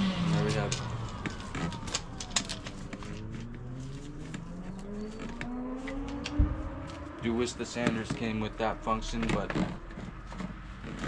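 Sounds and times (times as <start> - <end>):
sander and dust extractor motors: 0.0 - 11.0
scattered clicks: 0.5 - 8.3.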